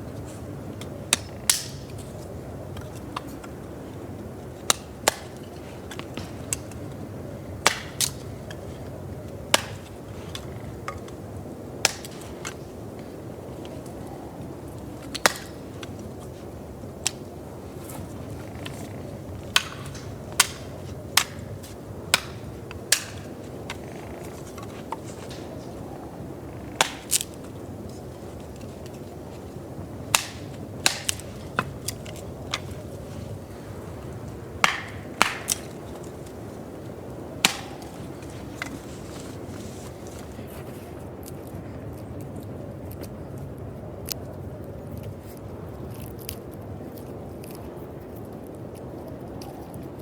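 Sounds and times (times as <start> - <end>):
hand tool strikes: 4.7 - 6.8, 15.1 - 15.6, 18.6 - 25.7, 26.8 - 27.4, 30.1 - 32.8, 34.6 - 36.3, 37.4 - 39.3.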